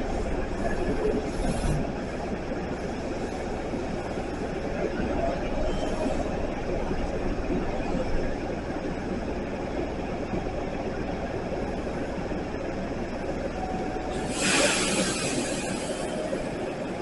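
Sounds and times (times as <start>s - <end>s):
train wheels rumbling: 0.0s - 17.0s
loud hiss: 14.1s - 16.2s.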